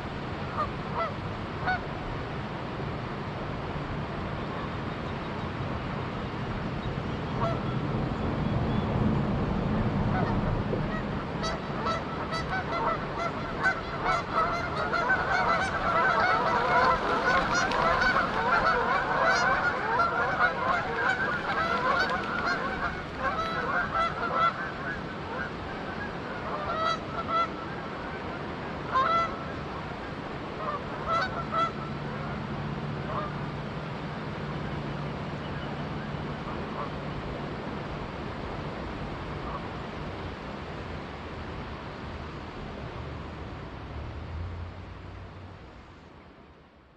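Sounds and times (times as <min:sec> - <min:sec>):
flowing river water: 0:00.0 - 0:46.9
geese honking: 0:10.9 - 0:27.8, 0:28.9 - 0:29.4, 0:30.6 - 0:32.4, 0:33.1 - 0:33.3.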